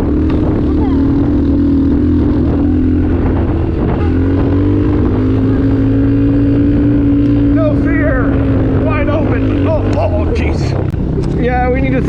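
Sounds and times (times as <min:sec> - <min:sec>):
motorcycle engine under load: 0:00.0 - 0:12.0.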